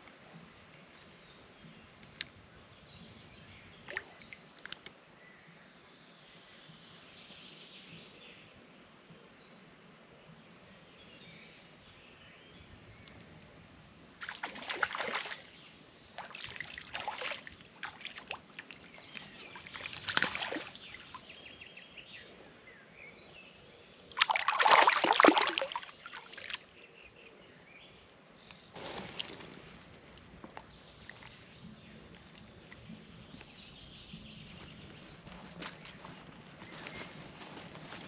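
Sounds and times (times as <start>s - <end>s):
water splashing: 14.2s - 21.3s, 24.1s - 26.8s.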